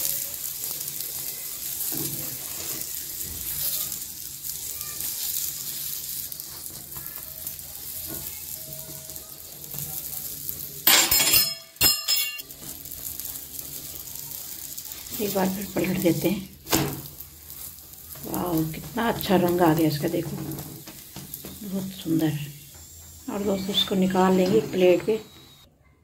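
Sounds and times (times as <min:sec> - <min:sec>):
ghee sizzling on griddle: 0:00.0 - 0:25.7
steel spoon scraping: 0:01.2 - 0:04.1, 0:10.8 - 0:16.2
metal utensils clattering: 0:10.8 - 0:12.8.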